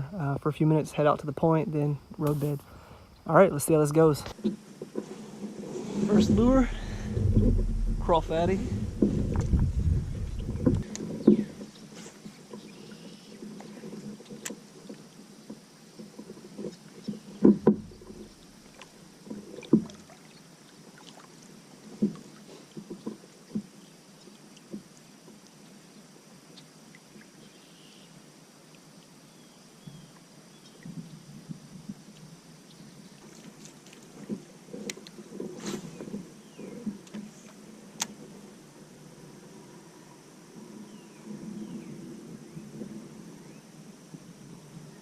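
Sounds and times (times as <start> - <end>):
faint water: 0.0 - 45.0
wind noise: 5.4 - 11.6.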